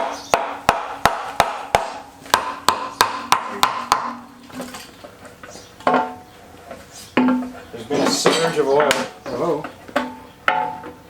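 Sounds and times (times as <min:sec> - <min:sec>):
hammer tapping on metal: 0:00.0 - 0:04.3.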